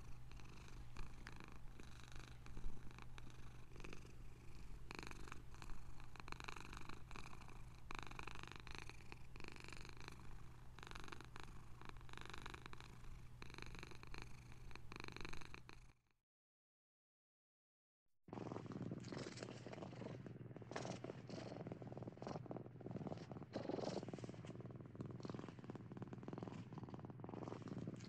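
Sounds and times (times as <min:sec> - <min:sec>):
cat purring: 0:00.0 - 0:16.0, 0:18.3 - 0:28.0.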